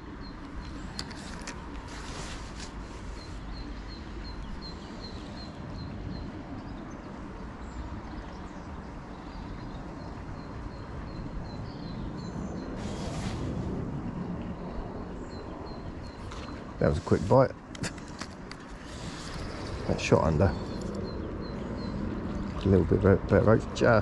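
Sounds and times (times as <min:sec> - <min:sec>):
brief rush of hiss: 0:12.8 - 0:13.7.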